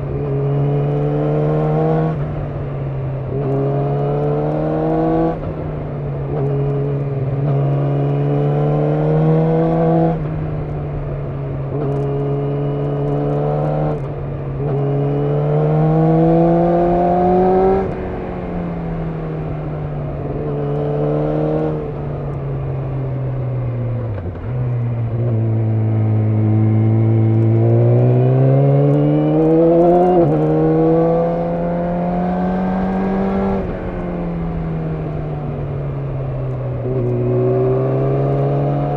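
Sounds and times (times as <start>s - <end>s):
motorcycle engine revving: 11.7s - 38.9s.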